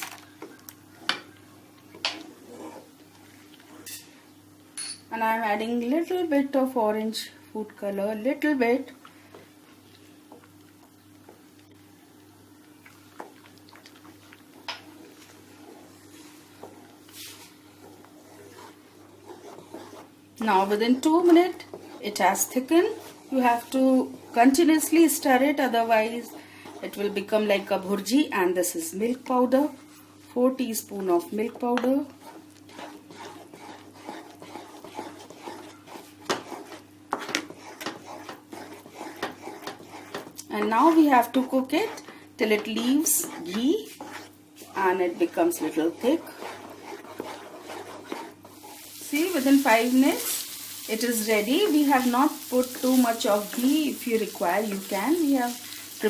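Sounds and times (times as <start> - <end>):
faint steady hum: 0.0 - 56.0
spatula scraping wok: 14.8 - 28.1, 30.9 - 56.0.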